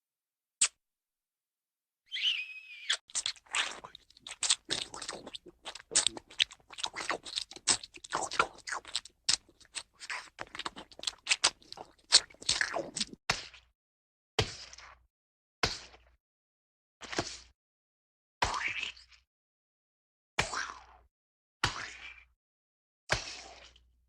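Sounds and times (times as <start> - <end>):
cartoon crunching: 2.9 - 13.2.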